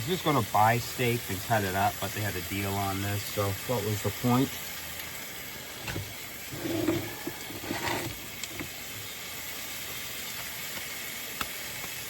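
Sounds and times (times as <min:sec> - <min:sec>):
steak sizzling in a skillet: 0:00.0 - 0:12.0.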